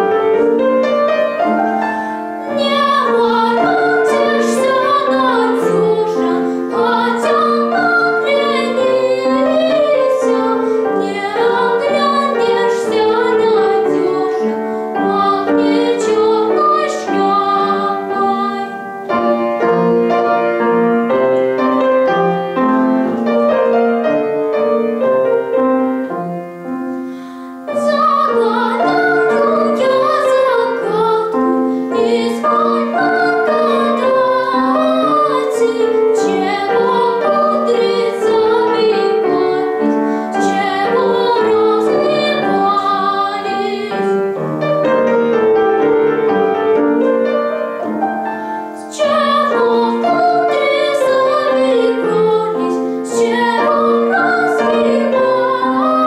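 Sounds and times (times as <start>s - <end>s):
piano accompaniment: 0.0s - 56.0s
woman singing with vibrato: 2.5s - 18.9s, 27.7s - 44.2s.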